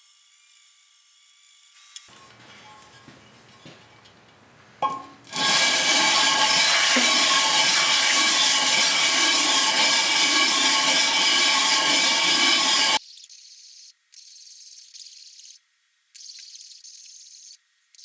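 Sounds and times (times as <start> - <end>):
rotary tool whining: 2.1 - 13.0.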